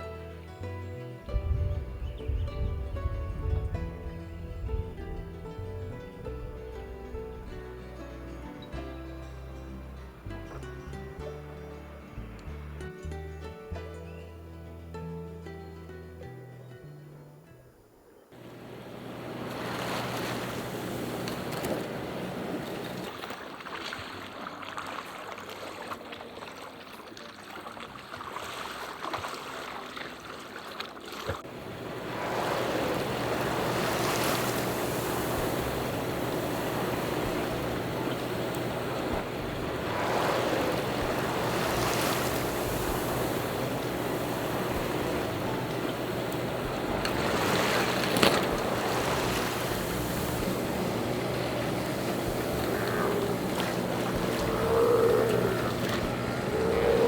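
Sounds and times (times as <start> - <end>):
wind on microphone: 1.3 - 7.6, 31.7 - 57.0
water washing along a hull: 18.4 - 57.0.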